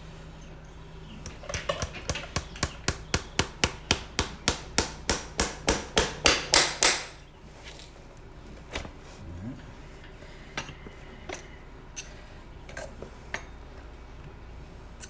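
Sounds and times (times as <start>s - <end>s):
hammer tapping horseshoe nails: 1.2s - 7.2s.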